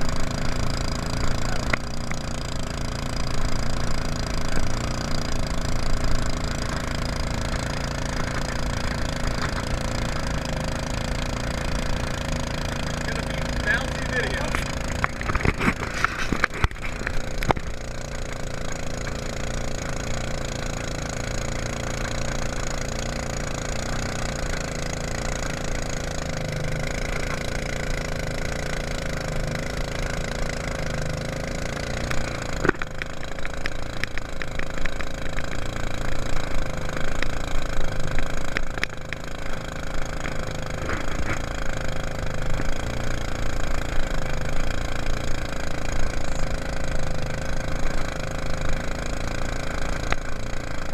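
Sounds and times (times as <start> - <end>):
boat motor running: 0.0 - 50.9.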